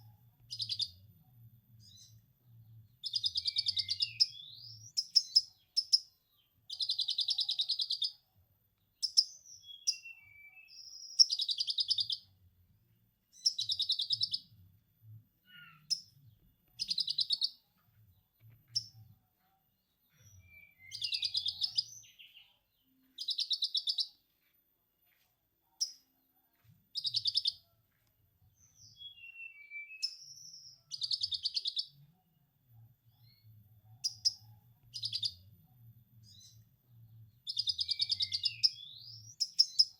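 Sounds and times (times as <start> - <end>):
squeaky bird chirps: 15.4 - 16.1, 20.2 - 22.0.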